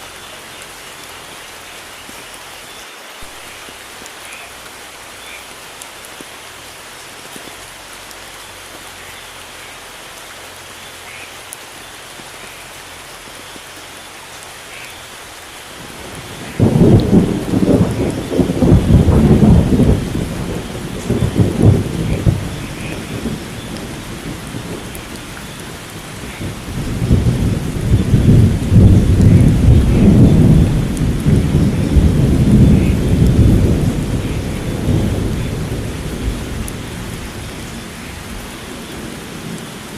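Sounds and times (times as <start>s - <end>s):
steady rain falling: 0.0s - 39.9s
rolling thunder rumble: 15.8s - 39.9s.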